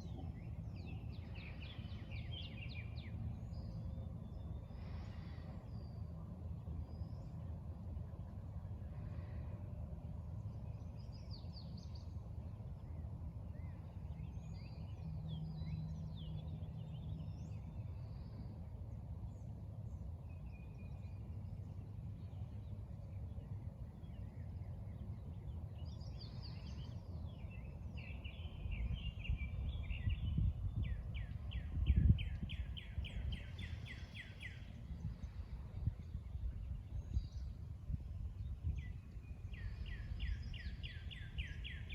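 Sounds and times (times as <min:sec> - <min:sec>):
steady low rumble: 0:00.0 - 0:41.9
birds chirping and singing: 0:24.9 - 0:37.6, 0:38.7 - 0:41.9.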